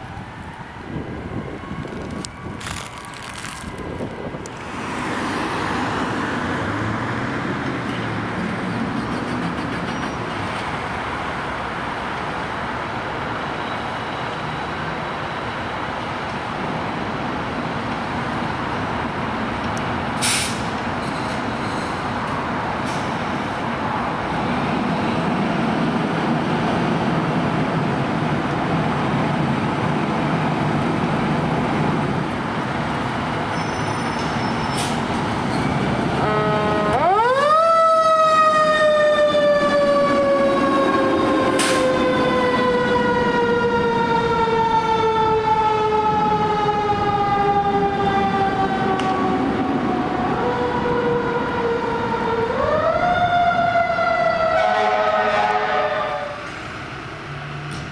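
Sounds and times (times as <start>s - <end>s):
fire truck mechanical siren wailing: 0.0s - 4.6s, 35.4s - 56.5s
passing traffic noise: 0.0s - 57.9s.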